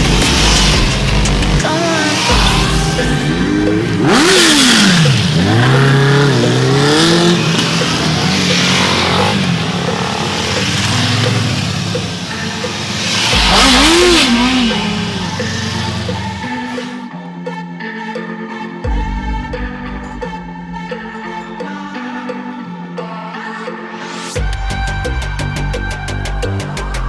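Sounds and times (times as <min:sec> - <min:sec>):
motorbikes accelerating and passing: 0:00.0 - 0:17.0.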